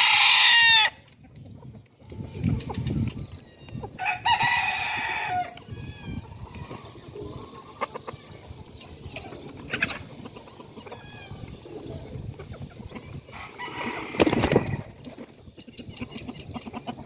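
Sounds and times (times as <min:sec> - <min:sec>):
rooster crowing: 0:00.0 - 0:01.0, 0:04.0 - 0:05.6
chickens clucking: 0:00.0 - 0:17.0.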